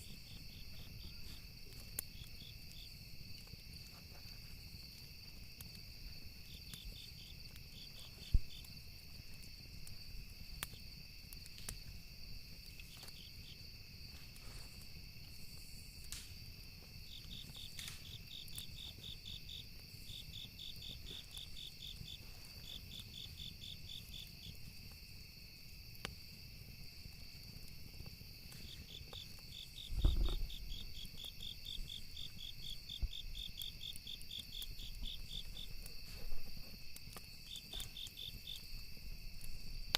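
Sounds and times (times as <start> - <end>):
crickets chirring: 0.0 - 39.9
fire crackling and popping: 0.0 - 39.9
low thump: 29.9 - 30.5.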